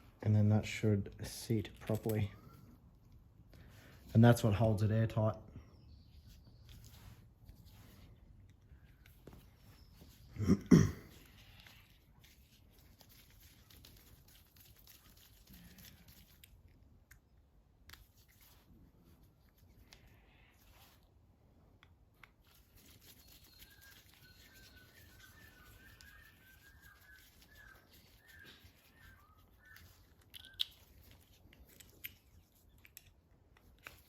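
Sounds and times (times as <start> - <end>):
faint bird chirps: 5.5 - 7.2, 8.7 - 12.0, 22.8 - 31.4.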